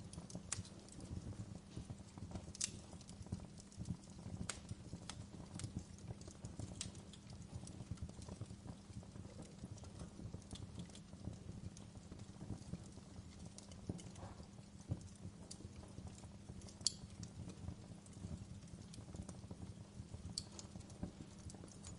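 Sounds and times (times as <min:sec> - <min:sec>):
fireplace fire crackling: 0:00.0 - 0:21.9
sharp pops and snaps: 0:00.2 - 0:01.0, 0:01.8 - 0:11.2, 0:11.8 - 0:17.4, 0:20.2 - 0:21.9.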